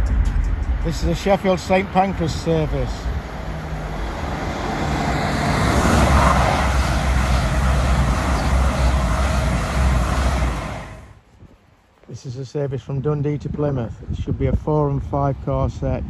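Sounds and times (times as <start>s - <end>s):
train engine drone: 0.0s - 11.2s
train wheels on rails: 0.9s - 11.2s.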